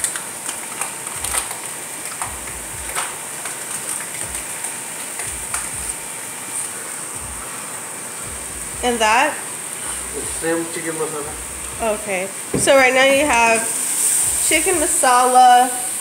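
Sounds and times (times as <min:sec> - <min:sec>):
paste sizzling in a pan: 0:05.9 - 0:16.0.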